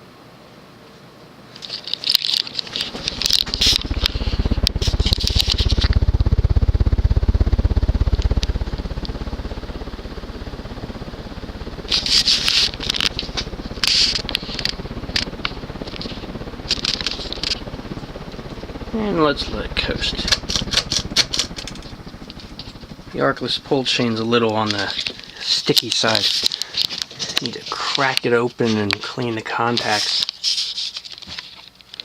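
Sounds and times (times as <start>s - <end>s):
ceiling fan motor low buzz: 0.0s - 31.2s
crackling and scraping clicks: 1.6s - 6.1s, 11.8s - 17.7s, 19.8s - 22.9s, 23.9s - 32.0s.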